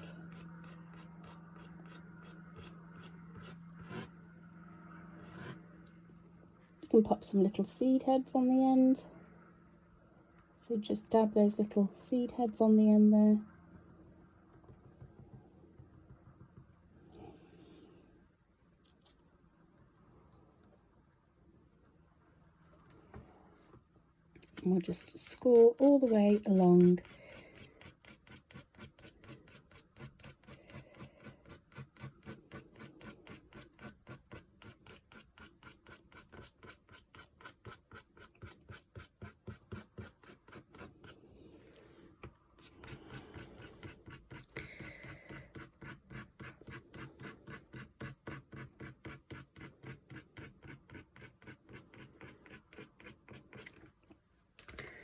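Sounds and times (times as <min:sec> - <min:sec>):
ink pen scratching on paper: 0:00.0 - 0:04.1, 0:05.2 - 0:05.6, 0:24.9 - 0:41.2, 0:42.6 - 0:53.9.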